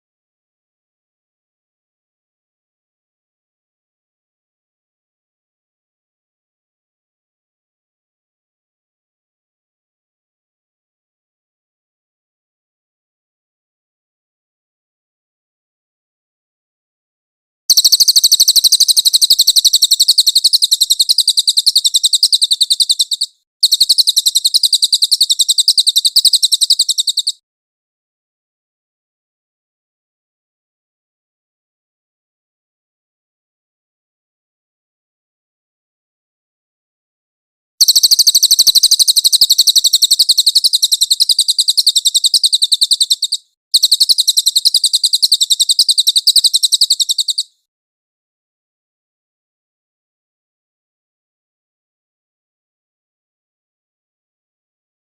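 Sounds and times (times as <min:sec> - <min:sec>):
songbird trill: 0:17.7 - 0:27.4, 0:37.8 - 0:47.6.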